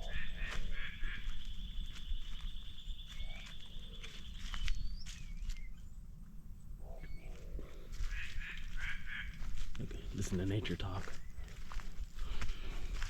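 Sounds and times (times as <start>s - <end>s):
bird chirps and gliding calls: 0.0s - 9.4s.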